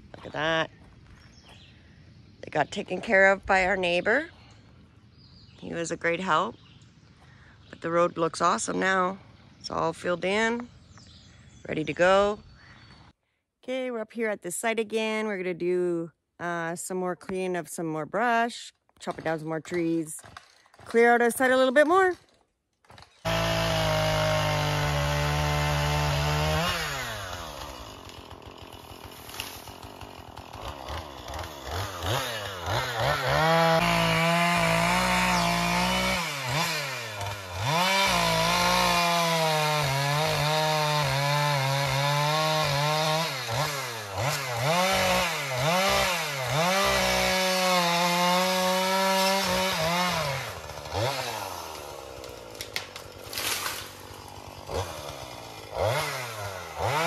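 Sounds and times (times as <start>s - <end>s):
chainsaw revving and idling: 23.0s - 57.0s.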